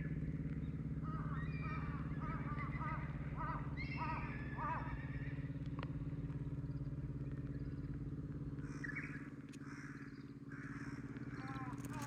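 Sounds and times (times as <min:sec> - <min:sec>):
engine idling: 0:00.0 - 0:12.0
faint bird chirps: 0:08.6 - 0:12.0.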